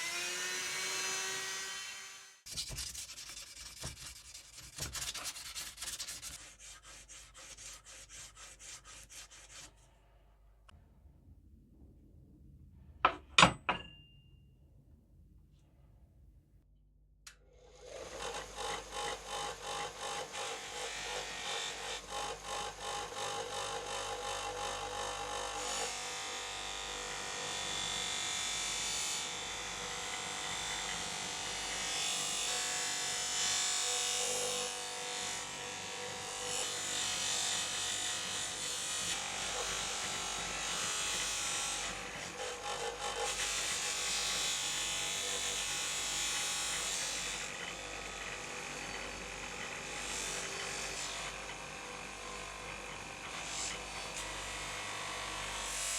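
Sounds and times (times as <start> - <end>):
powered abrasive tool on metal: 0.0 - 4.1, 17.8 - 55.9.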